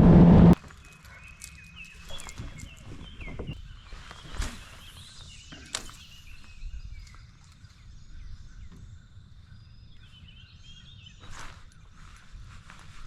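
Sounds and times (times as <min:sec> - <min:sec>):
low wind rumble: 0:00.0 - 0:00.6
birds chirping: 0:00.6 - 0:13.0.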